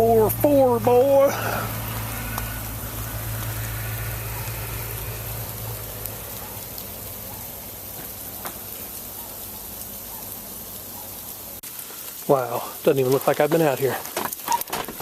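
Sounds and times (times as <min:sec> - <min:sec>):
truck engine rumble: 0:00.0 - 0:11.6
hiss of falling sleet and snow: 0:00.0 - 0:15.0.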